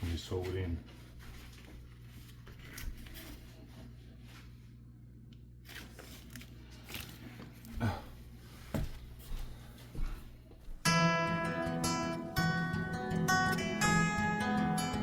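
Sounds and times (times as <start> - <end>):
sailcloth rustling: 0.0 - 4.6
low steady hum: 0.0 - 10.9.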